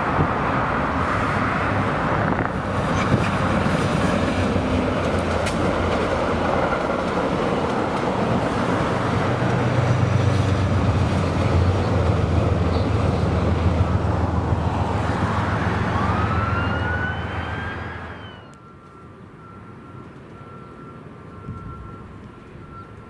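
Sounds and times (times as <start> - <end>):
train wheels rumbling: 0.0 - 19.0
low engine drone: 10.4 - 20.0
whine rising in pitch: 14.9 - 19.0.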